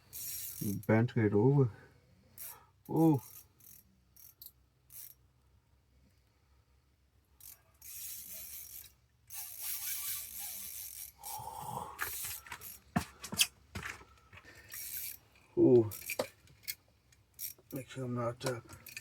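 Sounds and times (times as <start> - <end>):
fishing reel ratcheting and whirring: 0.1 - 0.9, 2.4 - 5.2, 7.4 - 11.4, 12.0 - 12.8, 14.7 - 15.2, 15.9 - 17.6, 18.8 - 19.0.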